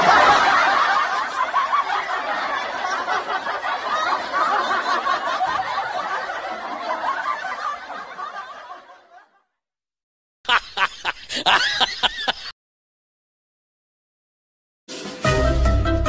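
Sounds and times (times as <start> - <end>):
audience laughter: 0.0 - 9.5, 10.5 - 12.5.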